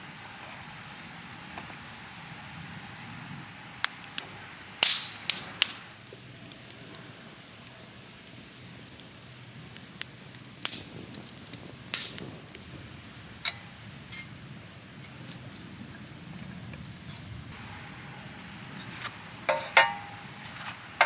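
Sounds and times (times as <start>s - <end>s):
wood fire crackling: 0.0s - 14.6s, 17.5s - 21.0s.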